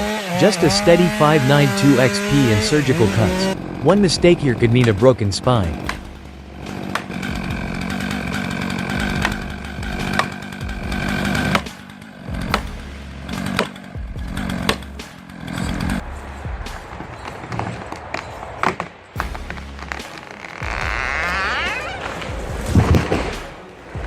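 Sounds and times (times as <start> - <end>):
chainsaw cutting wood: 0.0 - 16.0, 18.6 - 24.0.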